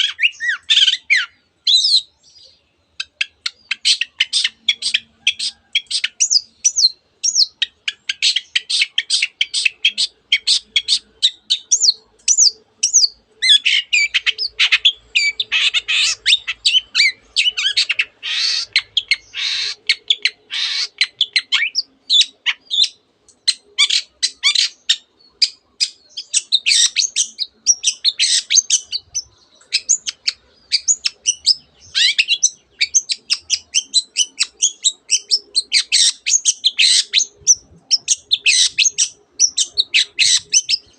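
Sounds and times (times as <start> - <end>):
bird singing chirps and trills: 0.0 - 40.9.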